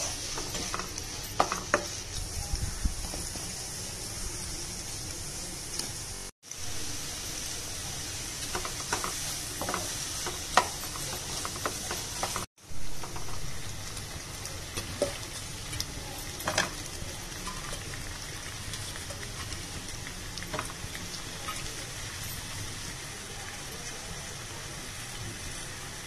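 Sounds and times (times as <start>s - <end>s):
wooden spatula clicking and scraping: 0.0s - 2.3s, 8.4s - 13.5s
vegetables sizzling in hot oil: 0.0s - 26.0s.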